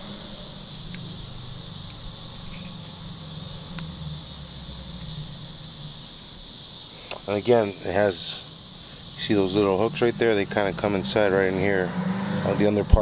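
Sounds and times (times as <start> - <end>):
low hum: 0.0 - 6.8
insects chirring: 0.0 - 13.0.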